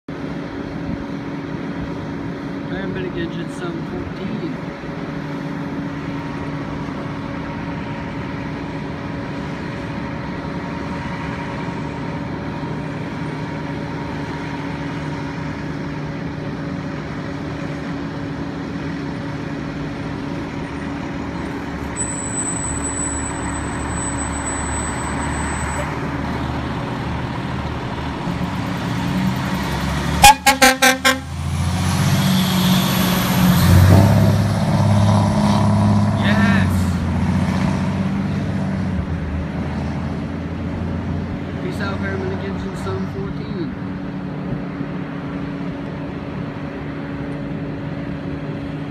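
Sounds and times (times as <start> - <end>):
air horn blasts: 30.2 - 31.3.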